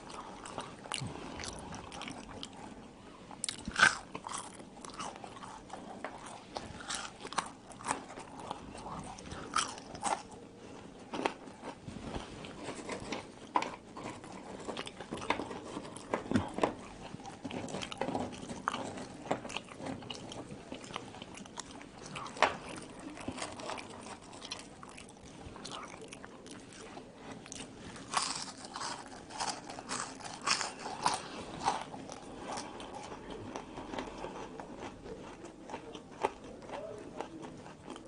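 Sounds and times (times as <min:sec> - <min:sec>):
person chewing crunchy fries: 0:00.0 - 0:38.0.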